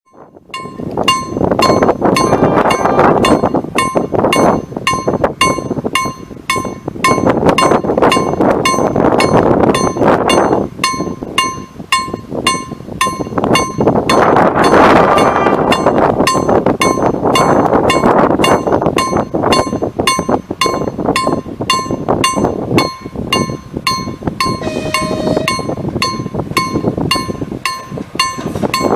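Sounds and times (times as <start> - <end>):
level crossing warning bell: 0.1 - 28.9
rushing noise: 0.8 - 4.3.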